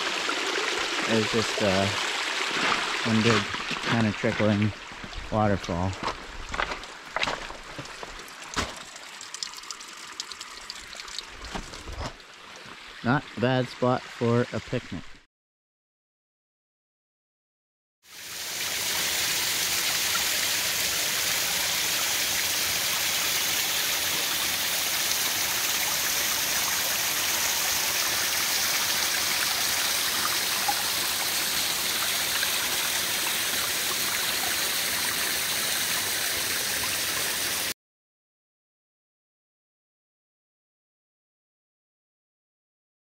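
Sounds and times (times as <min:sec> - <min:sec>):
water trickling over rocks: 0:00.0 - 0:13.5, 0:18.1 - 0:37.7.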